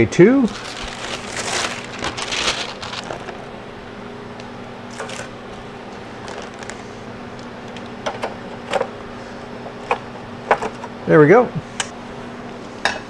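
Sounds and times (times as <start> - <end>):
steady low hum: 0.0 - 13.0
parchment paper rustling: 0.4 - 3.5, 6.2 - 7.0
plastic bag rustles: 0.4 - 3.5, 4.9 - 5.3, 6.1 - 7.0.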